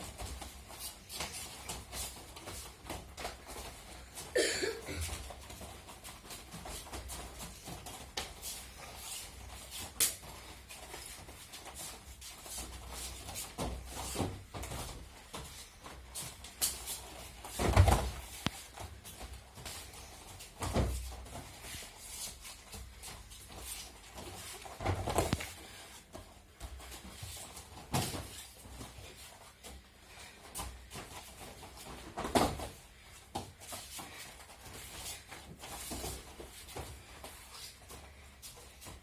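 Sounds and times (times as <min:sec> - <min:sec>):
light knocks and shuffling: 0:00.0 - 0:39.0
body falls thudding on mats: 0:17.5 - 0:18.4.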